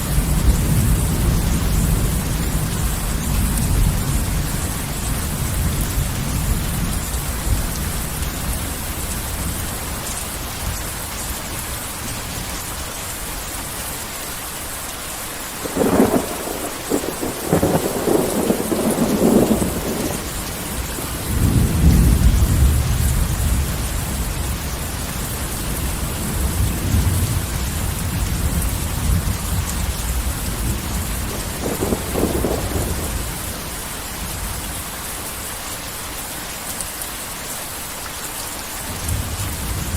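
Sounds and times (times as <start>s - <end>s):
heavy rain falling: 0.0s - 39.9s
thunder cracking and rumbling: 15.6s - 34.7s.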